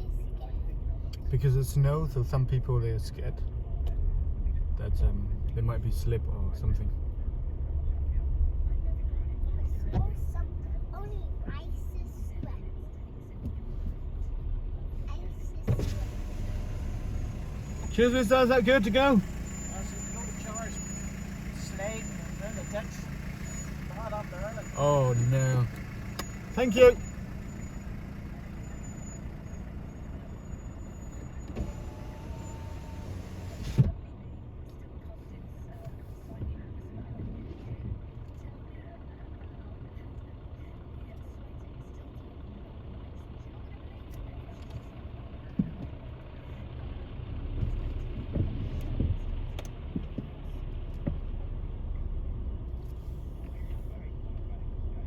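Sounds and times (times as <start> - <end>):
car engine idling: 0.0 - 55.0
electric window winding up: 31.1 - 33.8.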